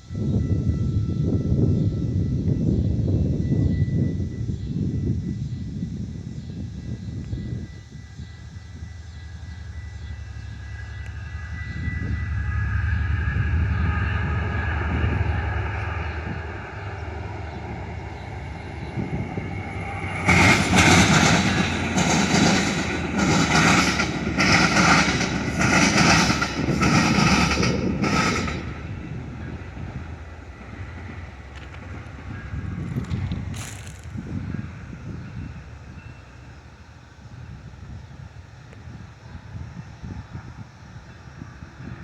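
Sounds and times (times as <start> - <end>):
train rumble and whine: 0.0 - 42.0
train wheels clattering: 17.5 - 34.4.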